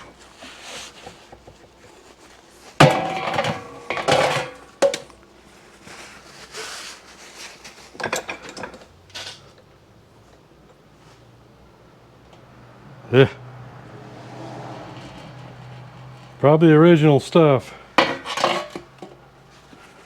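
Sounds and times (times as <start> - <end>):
metal tools clanking and rattling: 2.8 - 5.1, 7.9 - 9.6, 17.6 - 19.7.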